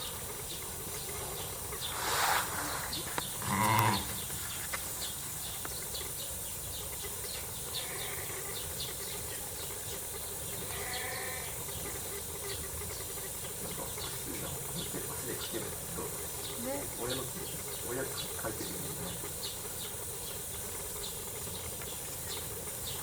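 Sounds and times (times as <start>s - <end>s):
background hiss: 0.0s - 23.0s
sheep bleating: 3.4s - 4.2s, 7.8s - 8.4s, 10.7s - 11.6s.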